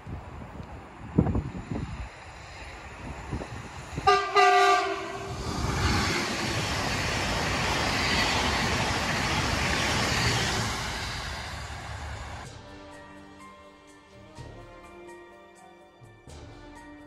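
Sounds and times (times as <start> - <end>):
train passing at speed: 0.0 - 14.6
train horn blast: 4.0 - 6.6.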